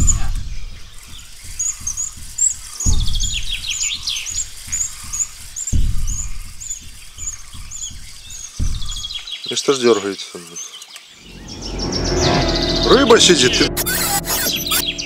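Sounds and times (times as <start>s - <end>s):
low thuds on microphone: 2.9s - 3.7s, 5.8s - 9.2s.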